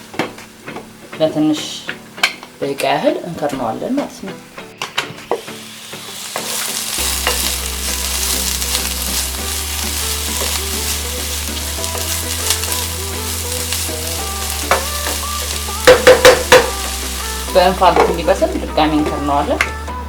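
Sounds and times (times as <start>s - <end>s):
vegetables sizzling in a pan: 5.2s - 19.9s.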